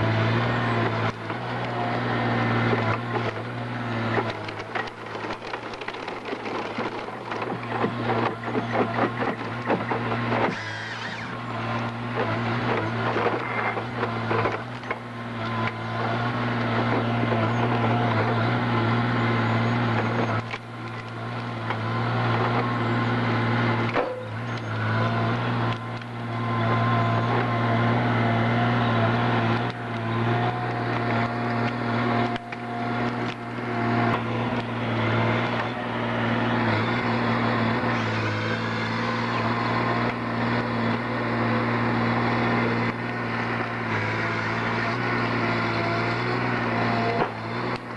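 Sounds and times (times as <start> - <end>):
heavy machinery engine drone: 0.0 - 47.9.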